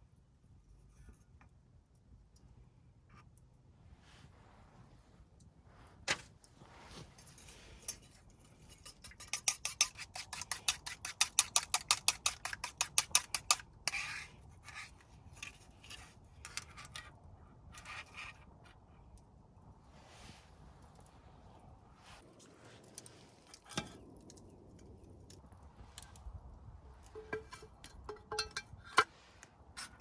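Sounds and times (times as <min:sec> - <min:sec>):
utensil clicks and scrapes: 0:06.1 - 0:18.8, 0:22.0 - 0:30.0.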